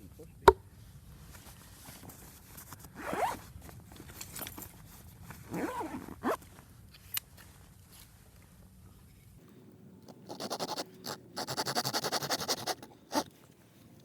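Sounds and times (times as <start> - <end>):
zip being pulled: 3.0 - 3.4, 5.5 - 6.4.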